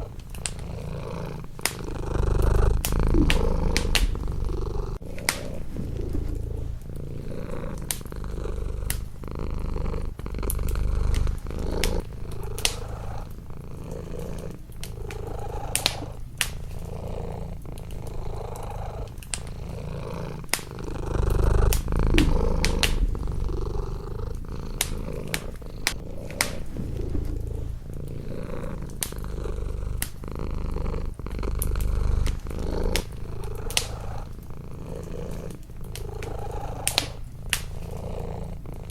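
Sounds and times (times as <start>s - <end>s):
cat purring: 0.0s - 38.9s
wood fire crackling: 0.0s - 38.9s.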